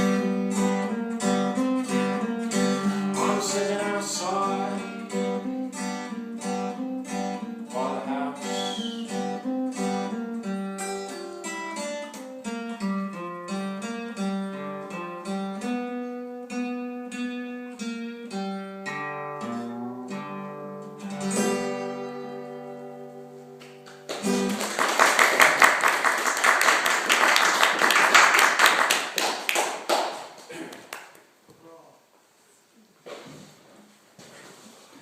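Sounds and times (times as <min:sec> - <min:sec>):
guitar picking notes and chords: 0:00.0 - 0:24.7
audience applause: 0:24.1 - 0:31.2.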